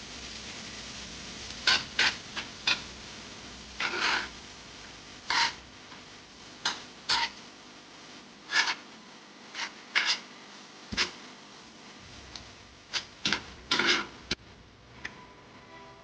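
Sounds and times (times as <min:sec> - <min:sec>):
kitchen utensils scraping and knocking: 0:01.6 - 0:02.8, 0:03.8 - 0:04.3, 0:05.3 - 0:05.6, 0:07.1 - 0:07.4, 0:08.5 - 0:08.8, 0:12.9 - 0:14.2.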